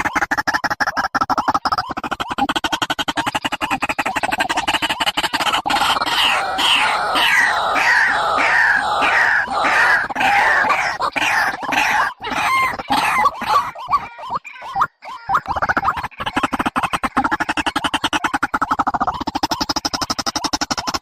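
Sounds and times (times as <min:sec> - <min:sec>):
bird calling falling notes: 0:00.0 - 0:21.0.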